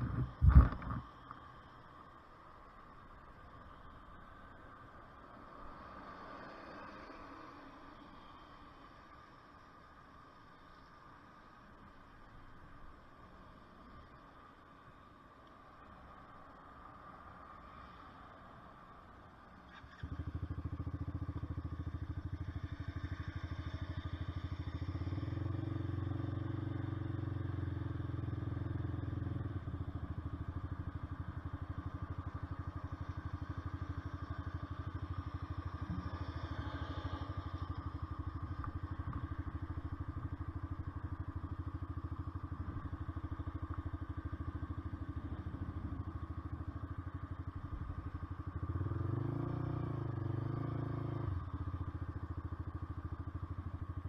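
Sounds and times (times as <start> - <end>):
motorcycle engine and exhaust: 0.0 - 1.7, 18.7 - 54.0.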